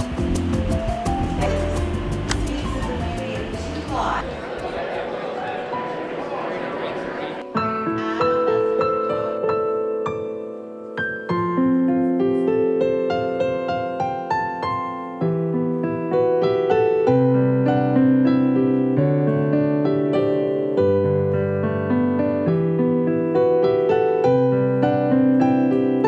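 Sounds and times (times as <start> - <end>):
gentle solo piano: 7.4 - 26.0.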